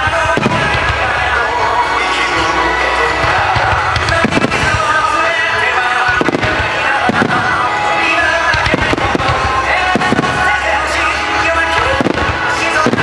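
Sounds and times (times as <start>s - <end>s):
fireworks bursting with crackling: 0.0s - 13.0s
music: 0.0s - 13.0s.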